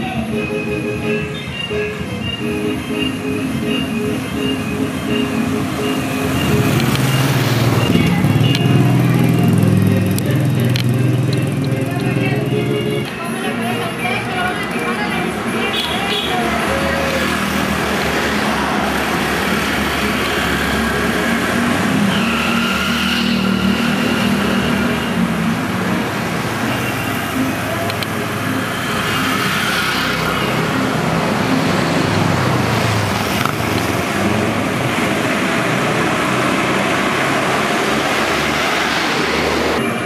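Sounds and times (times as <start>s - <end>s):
wind and road noise: 0.0s - 13.2s, 13.8s - 40.0s
motorcycle engine running: 3.7s - 13.0s.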